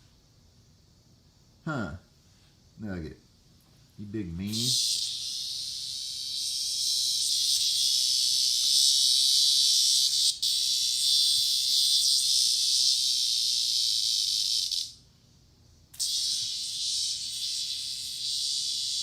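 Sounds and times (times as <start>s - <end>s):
cicada buzzing: 4.0s - 15.1s, 15.8s - 19.0s.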